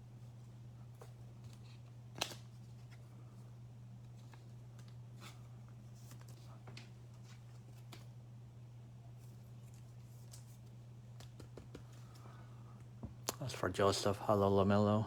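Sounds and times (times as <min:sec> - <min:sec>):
steady low hum: 0:00.0 - 0:15.0
cards clicking and rustling: 0:01.0 - 0:03.0.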